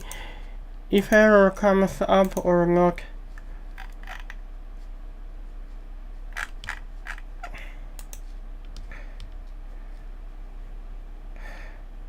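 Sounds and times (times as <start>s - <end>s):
low electrical hum: 0.0s - 12.0s
mouse and keyboard clicks: 6.4s - 9.4s.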